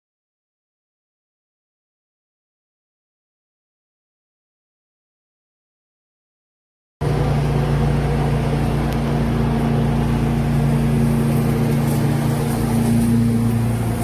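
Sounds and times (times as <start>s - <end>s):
leaf vacuum engine running: 7.0s - 14.0s.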